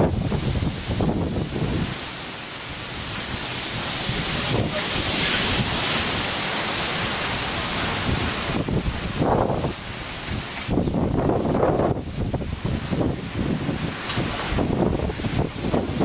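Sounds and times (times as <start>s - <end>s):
gusty wind: 0.0s - 16.0s
wind buffeting microphone: 0.0s - 16.0s.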